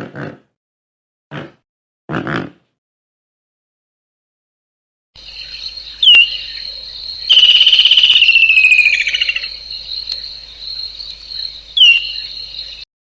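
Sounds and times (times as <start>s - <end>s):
insects chorus: 5.2s - 12.9s
falling whistled call: 7.3s - 9.4s.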